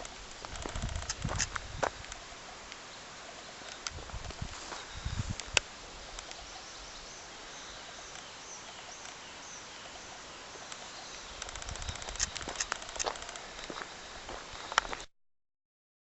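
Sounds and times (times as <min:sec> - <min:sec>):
rural background hiss: 0:00.0 - 0:15.1
small bird chirps: 0:06.1 - 0:15.0
footsteps on a lane: 0:11.8 - 0:15.1.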